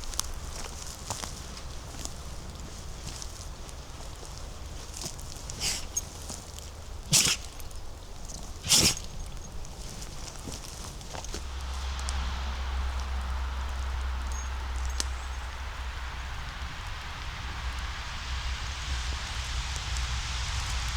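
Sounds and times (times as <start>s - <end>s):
footsteps on leaves and twigs: 0.0s - 15.6s
twigs crackling: 0.0s - 17.3s.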